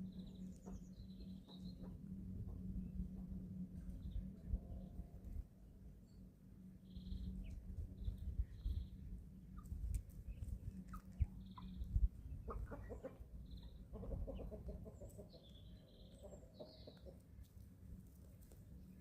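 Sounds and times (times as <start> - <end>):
low rumble: 6.7 - 14.7
chicks clucking softly: 9.5 - 17.6.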